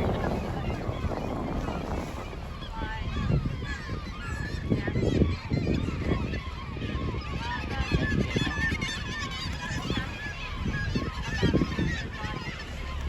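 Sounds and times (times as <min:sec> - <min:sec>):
steady low rumble: 0:00.0 - 0:06.0
seabirds calling: 0:00.0 - 0:13.0.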